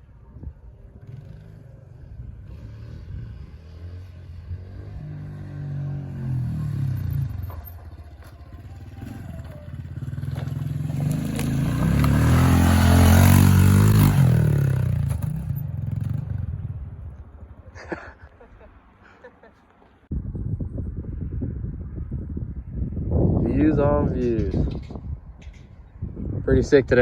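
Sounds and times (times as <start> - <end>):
pit bike engine passing: 0.7 - 18.2.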